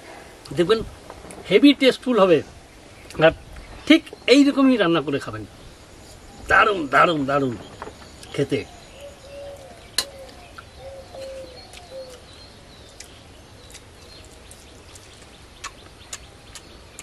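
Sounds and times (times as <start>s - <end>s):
low whistled bird calls: 5.5s - 17.0s
clicks and smacks of eating: 11.6s - 12.3s, 12.9s - 17.0s.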